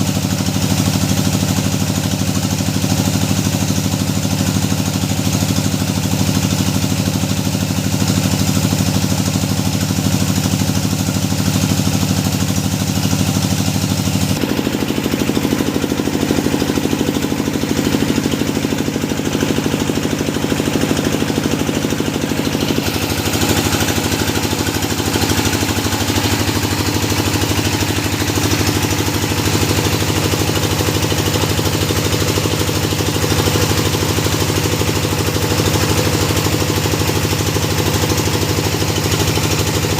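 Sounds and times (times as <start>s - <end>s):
drilling machine engine running: 0.0s - 39.9s.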